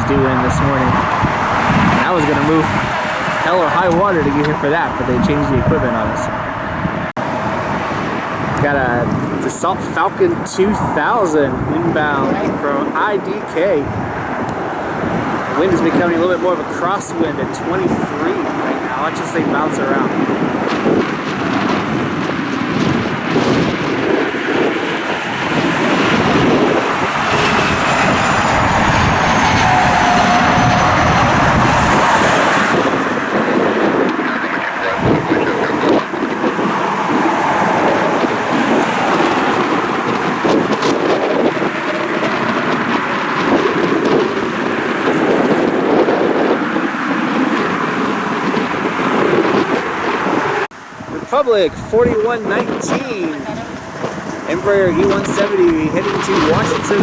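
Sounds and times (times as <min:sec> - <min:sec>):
jet engines whining: 0:00.0 - 0:57.0
wind buffeting microphone: 0:00.0 - 0:57.0.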